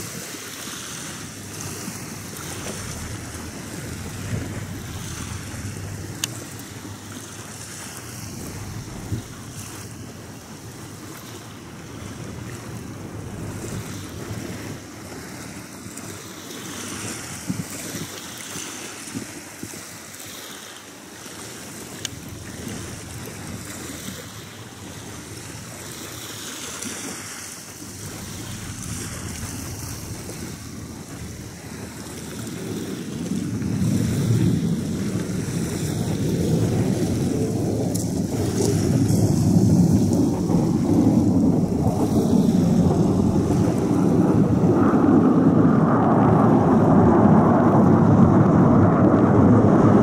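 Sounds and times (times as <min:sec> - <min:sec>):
distant jet aircraft: 0:00.0 - 0:19.1, 0:21.2 - 0:50.0
wind on microphone: 0:00.0 - 0:50.0.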